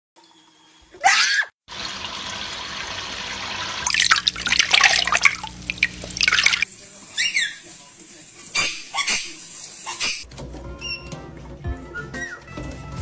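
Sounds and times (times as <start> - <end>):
bird splashing in water: 1.7 - 7.5
running water hissing: 1.7 - 10.3.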